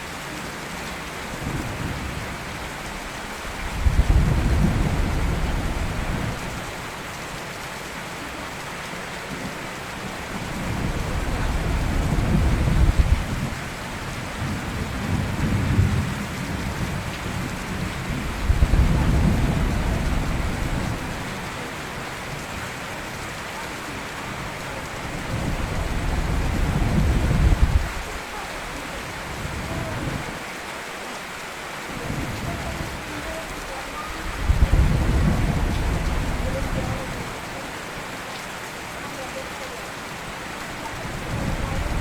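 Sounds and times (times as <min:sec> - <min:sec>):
steady rain: 0:00.0 - 0:42.0
thunder rumbling: 0:03.6 - 0:06.5, 0:10.4 - 0:13.6, 0:14.3 - 0:21.5, 0:25.1 - 0:28.3, 0:34.2 - 0:37.4.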